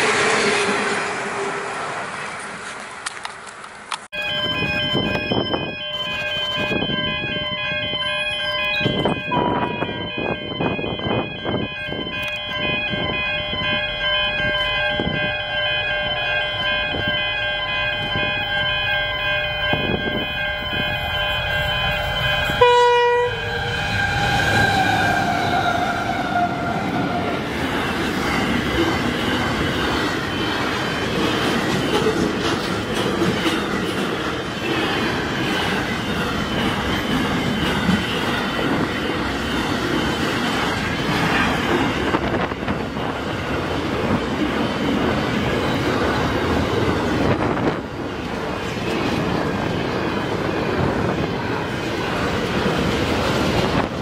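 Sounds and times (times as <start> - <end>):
train wagons rumbling on rails: 0.0 - 54.0
train horn chord: 21.1 - 26.8.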